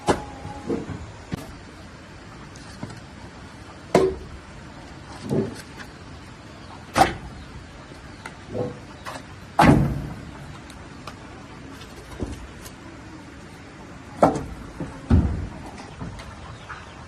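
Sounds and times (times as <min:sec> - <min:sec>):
low background noise: 0:00.0 - 0:17.0
knocks and thuds: 0:14.2 - 0:16.2.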